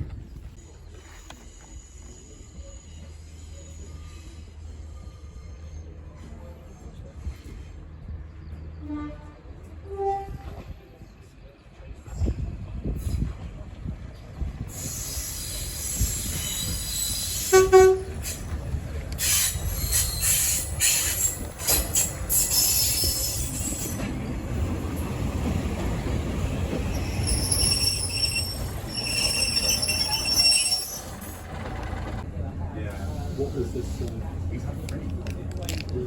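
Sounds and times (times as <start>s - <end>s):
train rumble: 0.0s - 36.0s
train horn: 8.8s - 10.7s, 17.4s - 18.2s
brakes squealing: 14.7s - 32.2s.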